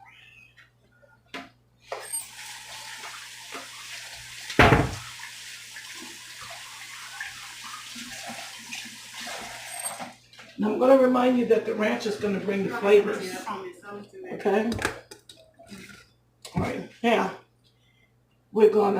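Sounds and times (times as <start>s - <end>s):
tap water running into sink: 1.9s - 10.2s
splash or knock: 4.6s - 5.1s.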